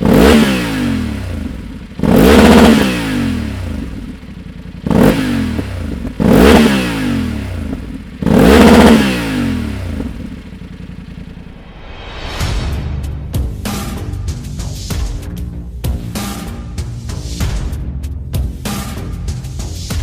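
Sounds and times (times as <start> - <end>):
motorcycle engine revving: 0.0 - 12.3.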